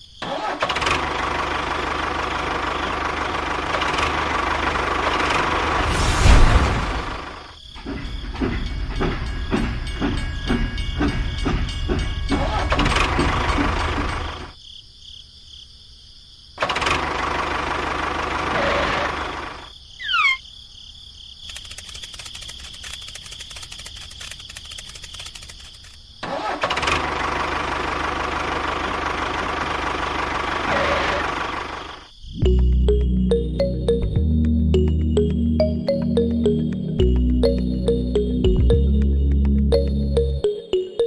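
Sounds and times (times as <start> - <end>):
engine running: 0.2 - 14.6, 16.6 - 19.7, 21.6 - 41.0
rapid fine ticking: 21.5 - 26.0.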